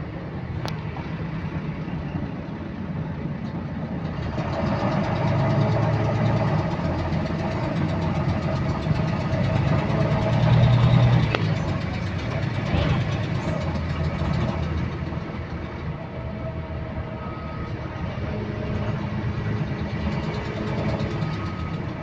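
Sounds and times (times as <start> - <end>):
bus engine pulling away: 0.0 - 22.0
rapid repetitive clicking: 4.6 - 15.6, 19.6 - 22.0.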